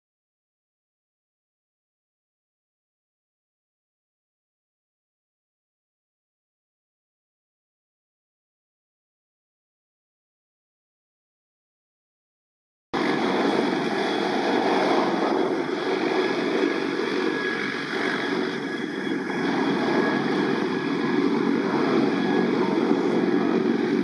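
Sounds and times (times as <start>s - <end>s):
helicopter rotor and engines: 13.0s - 24.0s.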